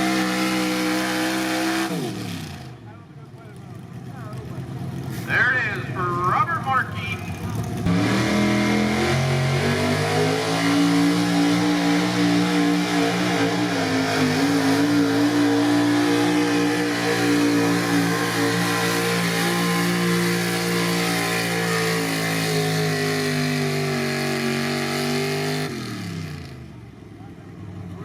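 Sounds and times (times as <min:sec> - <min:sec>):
truck engine at high revs: 0:00.0 - 0:28.0.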